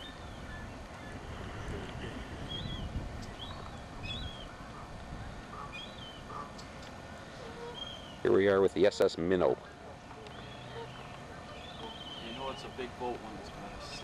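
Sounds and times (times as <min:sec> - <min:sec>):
steady low rumble: 0:00.0 - 0:08.3
small birds chirping: 0:00.0 - 0:14.0.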